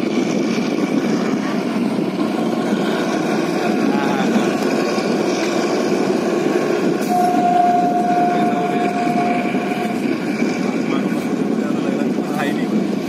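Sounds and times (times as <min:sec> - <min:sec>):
steady tone: 0:07.0 - 0:10.9.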